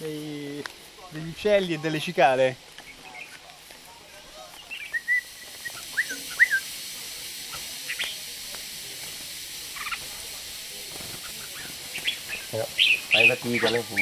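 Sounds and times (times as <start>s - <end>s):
cicadas hissing: 0.0s - 14.0s
bird chirps: 2.8s - 3.4s, 4.6s - 6.7s, 7.5s - 8.2s, 11.2s - 14.0s
bird whistling notes: 4.6s - 6.8s, 11.4s - 14.0s.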